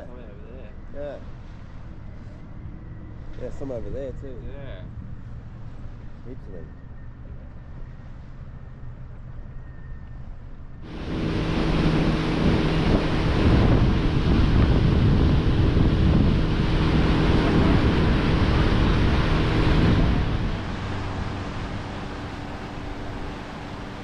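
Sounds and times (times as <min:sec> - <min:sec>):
boat engine: 0:10.4 - 0:24.0
wind noise on microphone: 0:10.7 - 0:24.0.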